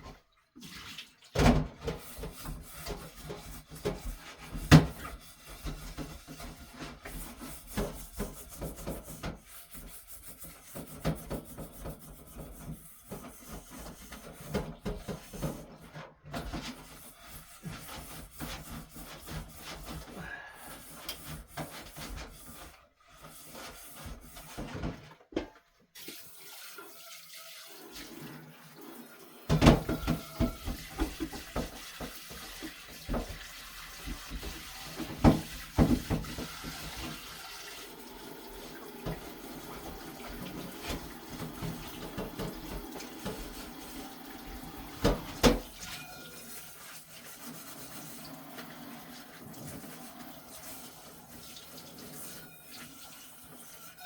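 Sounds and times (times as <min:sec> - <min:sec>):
rubbing and handling dishes: 0:01.7 - 0:25.7, 0:29.5 - 0:37.4, 0:38.5 - 0:48.6
dishes clattering: 0:29.5 - 0:31.7
tap running into sink: 0:29.5 - 0:46.0.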